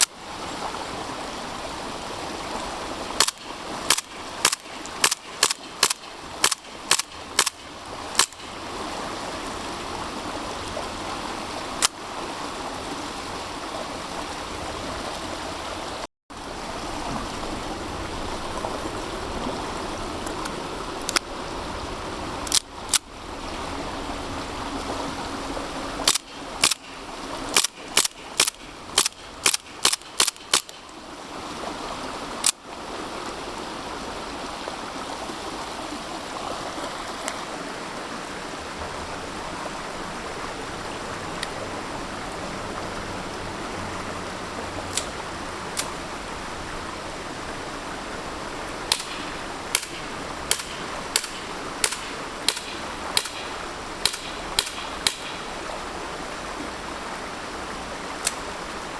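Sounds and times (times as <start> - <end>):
airsoft pistol shots: 3.2 - 7.6, 48.9 - 55.6
faint clicks: 3.2 - 8.5, 22.4 - 23.1.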